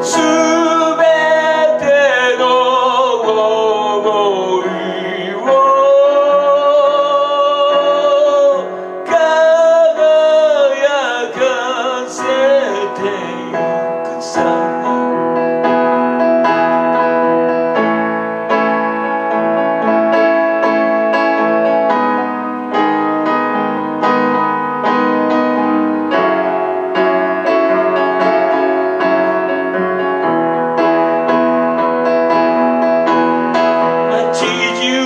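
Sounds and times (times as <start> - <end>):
piano playing ballad chords: 0.0 - 35.0.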